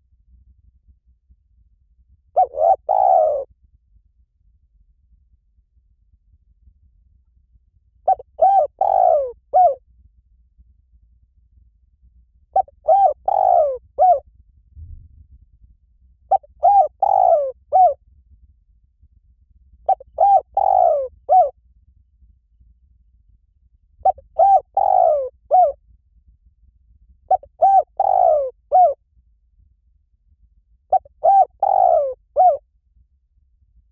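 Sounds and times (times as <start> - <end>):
dove cooing: 2.4 - 3.5, 8.1 - 9.8, 12.6 - 14.2, 16.3 - 18.0, 19.9 - 21.5, 24.0 - 25.8, 27.3 - 29.0, 30.9 - 32.6.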